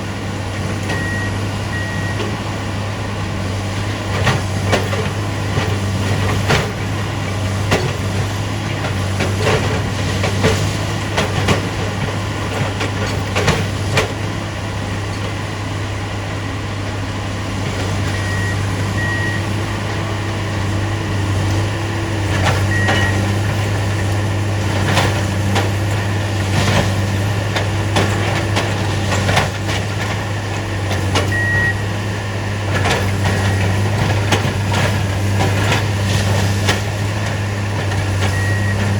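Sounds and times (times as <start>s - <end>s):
diesel machines running: 0.0s - 38.9s
short high beeps: 0.9s - 2.2s, 18.1s - 19.4s, 31.3s - 31.8s.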